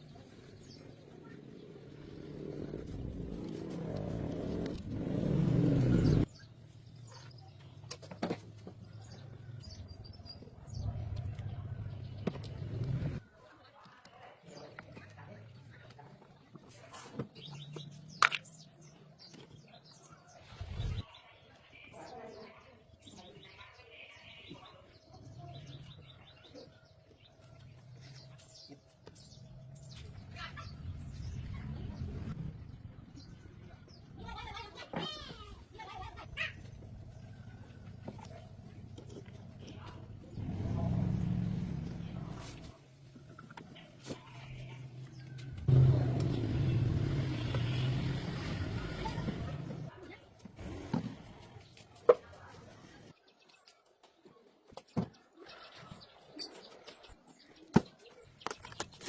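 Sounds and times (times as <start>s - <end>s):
vehicle engine running: 44.7s - 49.9s.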